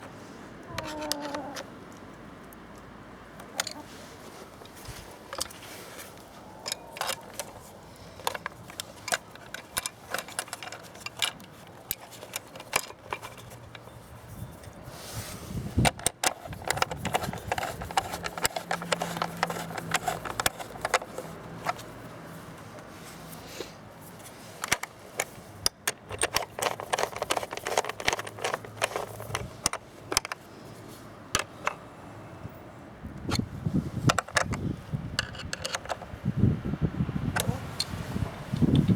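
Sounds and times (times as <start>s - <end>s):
hand tools clicking and clinking: 0.7s - 1.7s, 3.4s - 4.0s, 4.6s - 14.8s, 15.8s - 30.5s, 31.3s - 31.8s, 34.0s - 34.6s, 35.2s - 36.1s.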